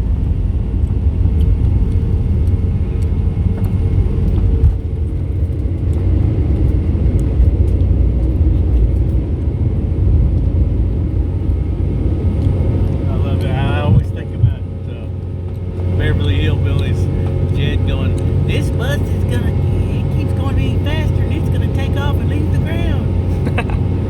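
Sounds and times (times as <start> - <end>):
jet engines roaring at takeoff: 0.0 - 24.0.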